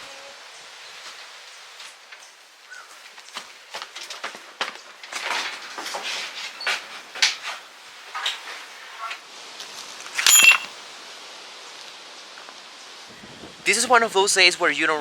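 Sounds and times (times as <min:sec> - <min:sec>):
metal pieces knocking and clattering: 0:10.2 - 0:10.7
sharp metallic clink: 0:10.2 - 0:10.8.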